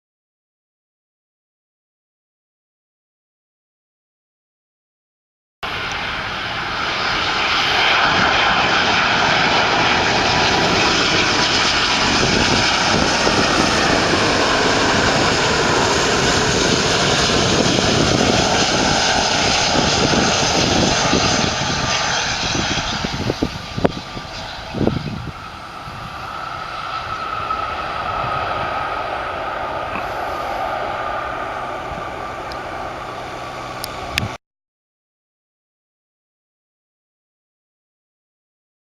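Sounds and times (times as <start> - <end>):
jet engine whine: 5.6 - 34.4
jet engines roaring: 5.6 - 34.4
low hum: 5.6 - 34.4.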